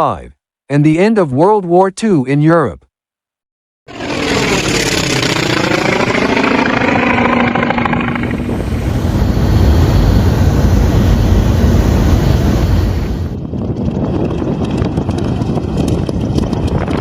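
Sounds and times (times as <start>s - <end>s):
radial piston engine running: 3.9s - 12.2s
low wind-like rumble: 3.9s - 17.0s.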